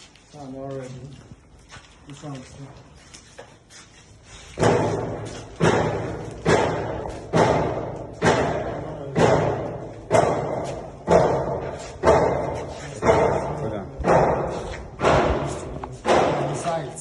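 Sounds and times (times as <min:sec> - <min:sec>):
heavy hammer blows ringing: 0:04.6 - 0:16.8.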